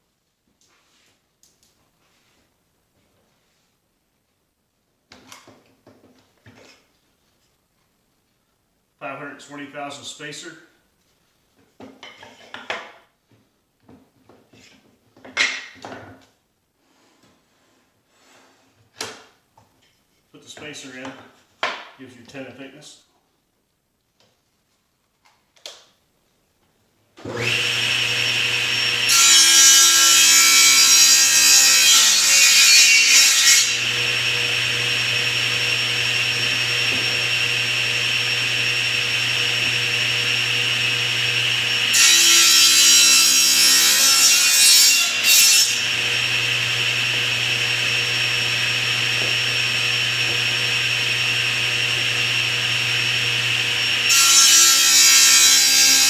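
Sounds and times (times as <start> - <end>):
saw cutting through wood: 27.2 - 56.0
table saw running: 27.2 - 56.0.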